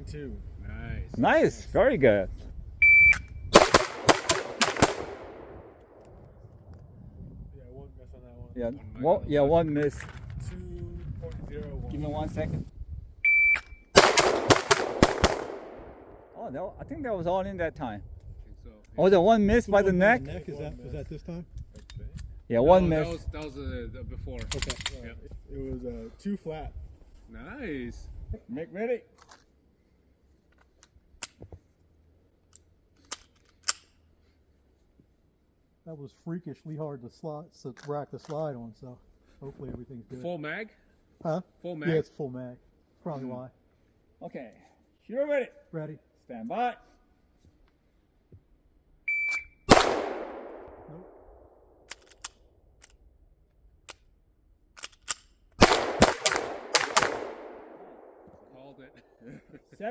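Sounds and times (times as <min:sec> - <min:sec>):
pistol shots echoing: 0:03.6 - 0:06.0, 0:14.0 - 0:16.2, 0:49.7 - 0:50.8, 0:55.6 - 0:58.3
pistol magazine clicking in: 0:32.5 - 0:33.9, 0:51.9 - 0:53.0, 0:54.8 - 0:55.4
pistol slide racking: 0:51.9 - 0:53.0, 0:54.8 - 0:55.4.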